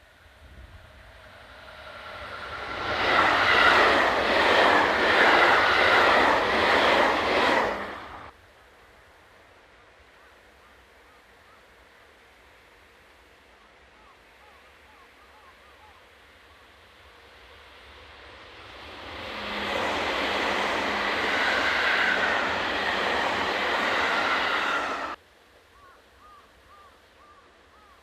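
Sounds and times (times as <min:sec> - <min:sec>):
freight train passing: 0:00.0 - 0:08.4, 0:16.4 - 0:25.2.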